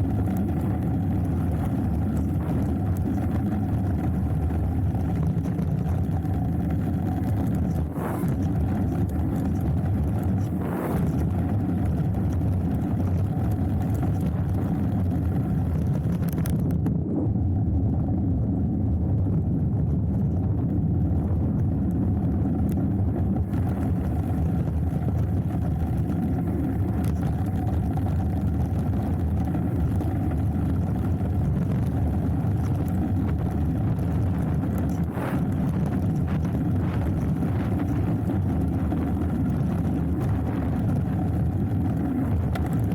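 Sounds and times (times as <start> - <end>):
bike rolling on dirt trail: 0.0 - 16.9, 19.2 - 42.9
wind on microphone: 0.0 - 42.9.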